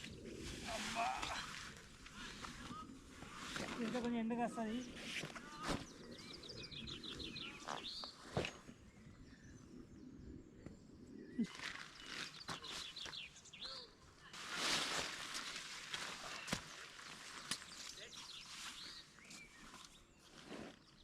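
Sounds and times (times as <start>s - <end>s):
rustling: 14.4s - 20.8s.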